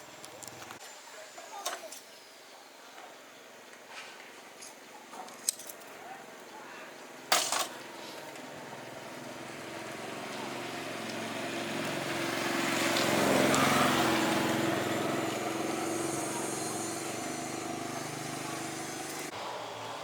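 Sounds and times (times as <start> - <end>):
small engine running: 9.0 - 19.4.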